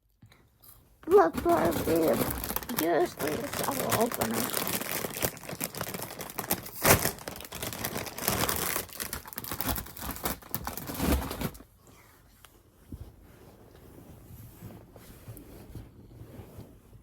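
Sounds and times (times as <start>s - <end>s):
snack wrapper crinkling and tearing: 1.4s - 11.6s.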